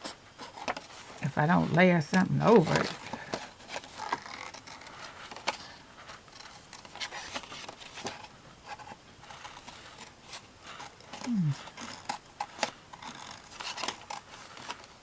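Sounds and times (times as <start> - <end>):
magazine paper rustling: 0.4 - 15.0.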